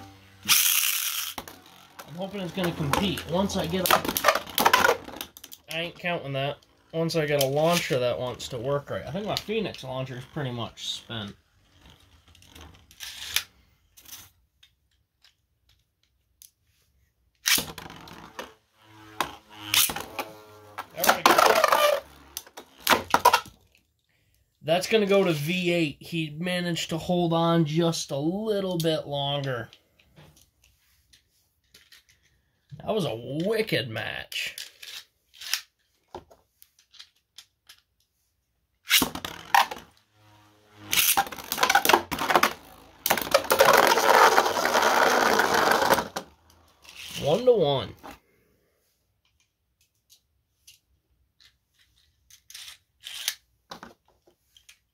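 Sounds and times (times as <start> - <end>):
spinning tops whining: 0.0 - 13.4, 17.9 - 22.9, 39.3 - 47.5
spinning tops clashing: 0.4 - 1.6.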